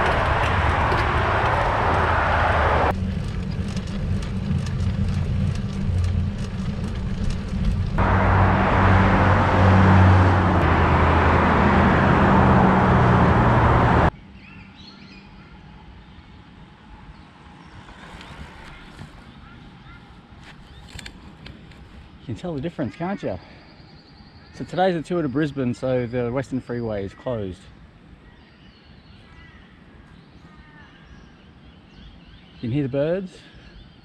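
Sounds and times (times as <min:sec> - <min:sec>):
freeway traffic: 0:00.0 - 0:14.4, 0:15.6 - 0:28.3.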